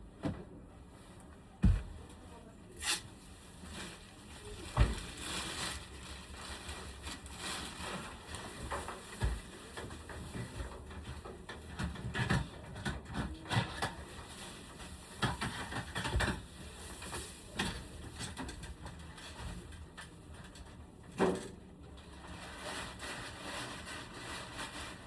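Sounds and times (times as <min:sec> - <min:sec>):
dull thumps: 0:01.6 - 0:02.0.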